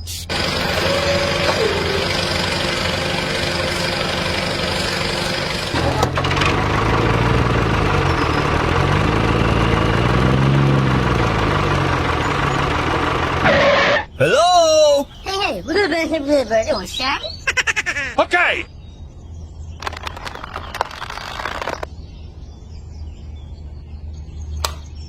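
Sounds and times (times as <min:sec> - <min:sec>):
engine running: 0:00.0 - 0:14.2.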